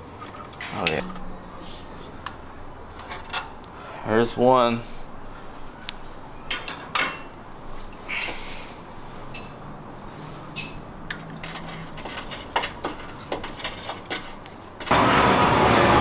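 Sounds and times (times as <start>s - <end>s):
loud steady mechanical noise: 0.0s - 16.0s
hand tools clinking on metal: 0.2s - 3.6s, 6.5s - 7.4s, 9.2s - 9.6s, 10.5s - 14.9s.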